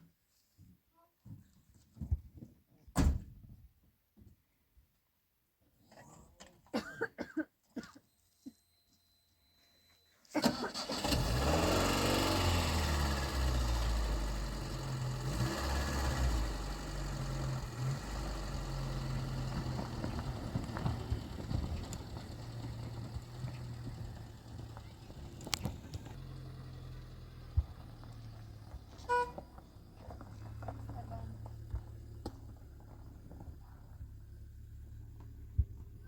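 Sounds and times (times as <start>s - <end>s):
vehicle engine running: 11.0s - 36.0s.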